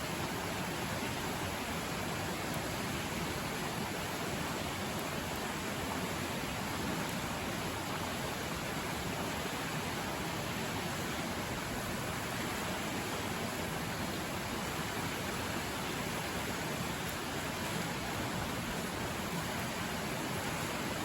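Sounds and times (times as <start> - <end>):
river flowing: 0.0 - 21.0.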